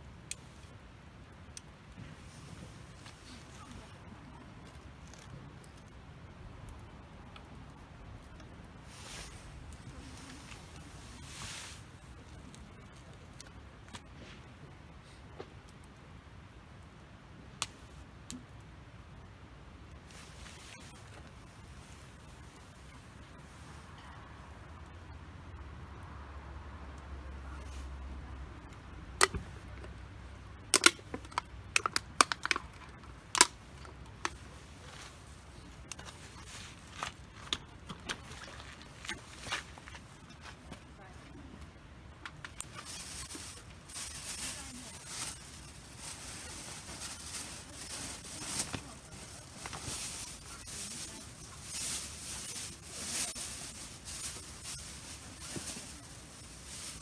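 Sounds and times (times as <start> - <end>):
campfire crackling and popping: 0.1 - 14.1, 15.4 - 23.3, 28.6 - 40.4
campfire hissing rush: 8.8 - 12.2.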